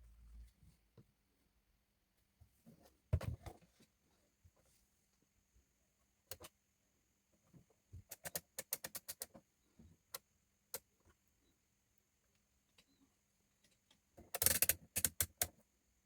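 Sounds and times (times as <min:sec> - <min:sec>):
small hard parts clicking: 0:08.1 - 0:09.4, 0:14.2 - 0:15.6.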